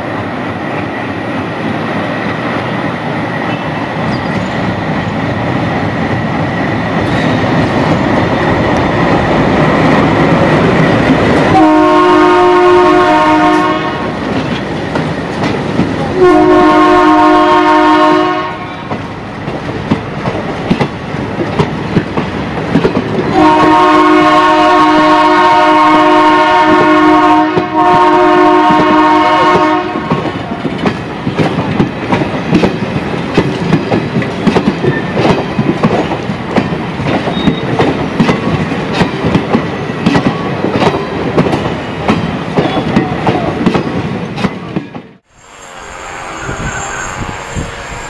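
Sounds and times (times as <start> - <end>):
diesel locomotive horn blasts: 11.5 - 14.2, 16.1 - 19.0, 23.3 - 30.2, 45.3 - 48.0
train wheels clattering over rail joints: 14.2 - 16.1, 18.9 - 23.4, 30.1 - 45.1.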